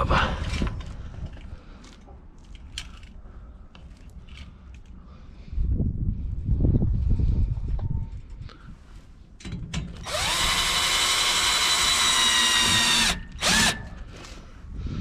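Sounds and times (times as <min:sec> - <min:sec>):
electric drill whining: 0:10.0 - 0:14.1.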